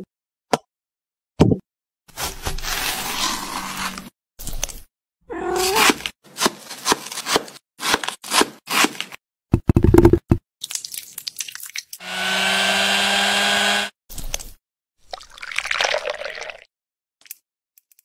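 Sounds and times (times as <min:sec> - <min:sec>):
small electric appliance motor: 0:12.0 - 0:14.0.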